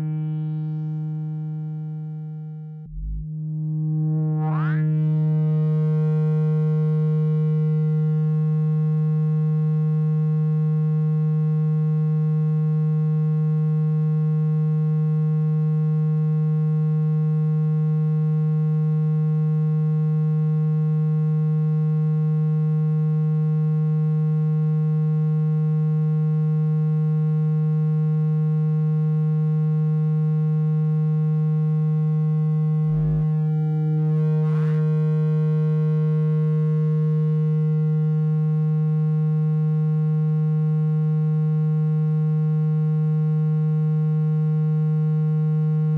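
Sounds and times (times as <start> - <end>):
low buzzy electronic tone: 0.0 - 14.2, 30.2 - 43.2.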